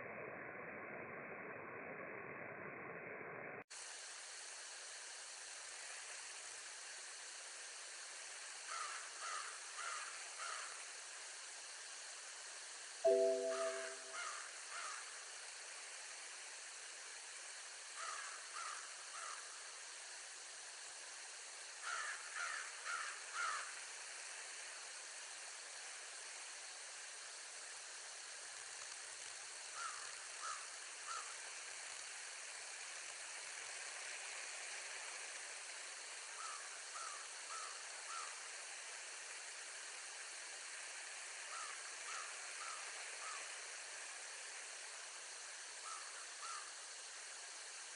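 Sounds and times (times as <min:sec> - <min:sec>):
steady hiss: 0:03.5 - 0:47.9
bird calling: 0:13.1 - 0:14.9.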